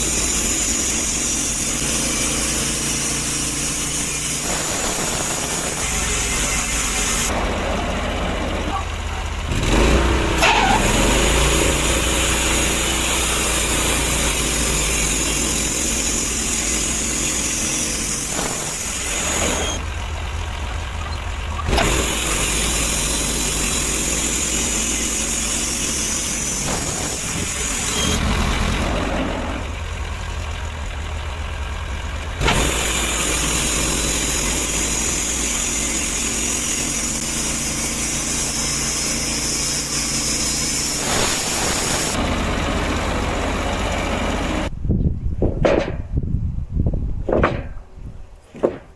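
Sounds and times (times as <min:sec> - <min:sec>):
sawmill engine running: 0:00.0 - 0:44.8
high hiss: 0:33.7 - 0:42.2.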